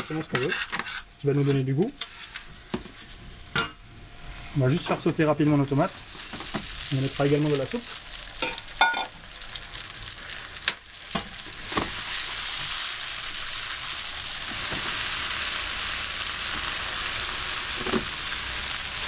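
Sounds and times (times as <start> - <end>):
tomatoes sizzling in oil: 5.6 - 19.0.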